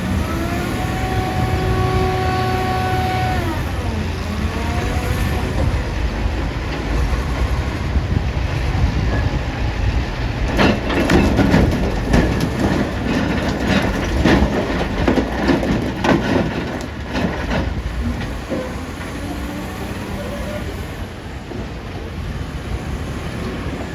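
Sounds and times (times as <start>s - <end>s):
diesel engine rumbling: 0.0s - 23.9s
rocks tumbling into truck body: 10.5s - 18.7s.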